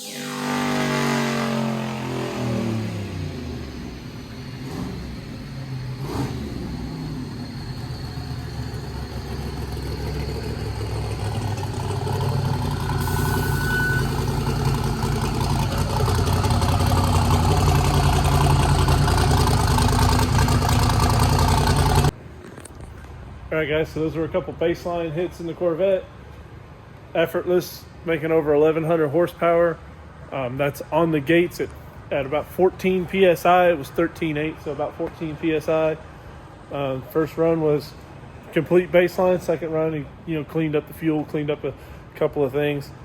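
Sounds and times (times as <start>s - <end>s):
car engine on dyno: 0.0s - 22.2s.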